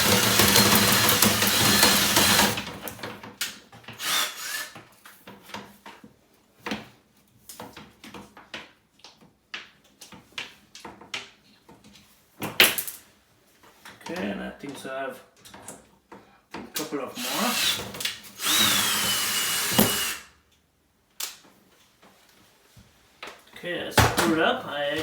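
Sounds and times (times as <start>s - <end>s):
rods clicking and knocking: 0.0s - 2.8s
power drill spinning: 0.0s - 2.9s, 4.0s - 4.8s, 17.2s - 20.3s.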